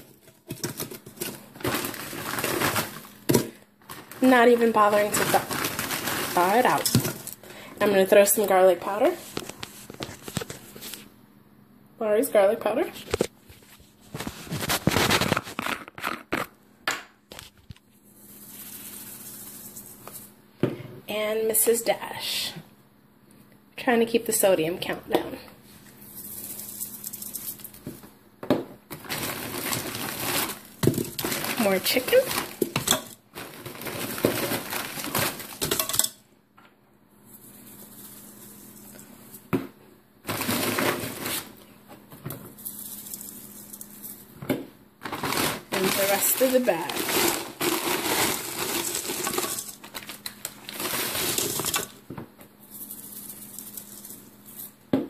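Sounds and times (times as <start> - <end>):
frozen food clattering into pot: 0.0 - 7.4, 28.9 - 36.2, 40.2 - 41.6, 45.0 - 52.1
plastic bag crinkling: 0.1 - 8.0, 14.1 - 16.5, 28.9 - 35.9, 40.2 - 41.6, 45.0 - 52.0
spice shaker rattling: 26.1 - 27.8, 42.6 - 44.2, 52.6 - 54.8.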